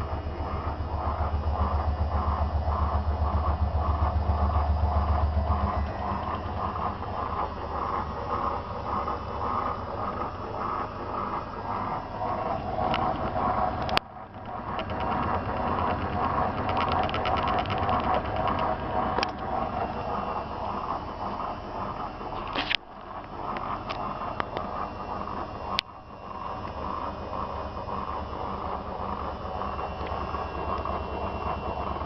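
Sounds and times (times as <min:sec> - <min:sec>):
washing machine drum swishing: 0:00.0 - 0:16.7
motor hum: 0:00.0 - 0:32.0
rattly ticks: 0:12.3 - 0:19.5.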